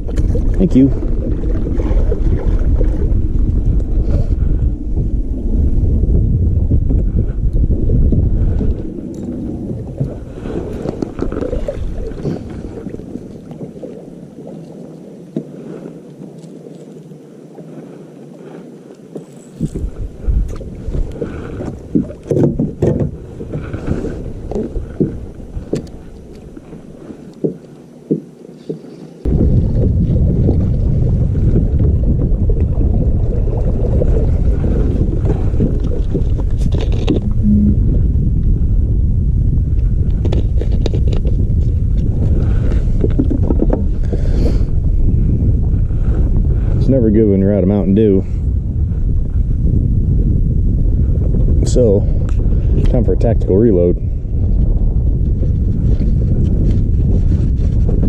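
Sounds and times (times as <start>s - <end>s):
low rumbling haze: 0.0s - 15.2s, 29.2s - 58.0s
wind on microphone: 0.0s - 58.0s.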